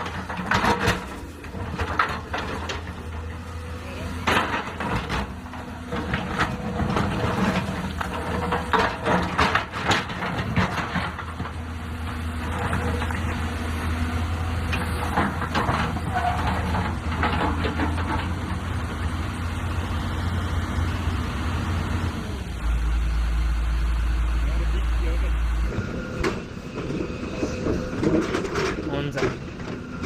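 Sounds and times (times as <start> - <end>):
rock knocking and clattering: 0.0 - 3.2, 4.2 - 13.5
excavator diesel engine running: 0.0 - 30.0.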